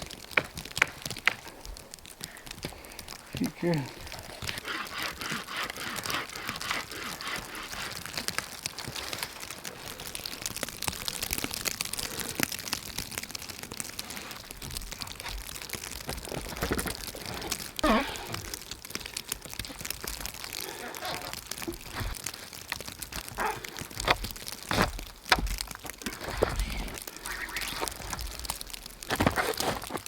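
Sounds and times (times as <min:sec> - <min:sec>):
crunching in snow: 0:00.0 - 0:30.0
small crackling clicks: 0:00.0 - 0:30.0
steady hiss: 0:26.0 - 0:29.1.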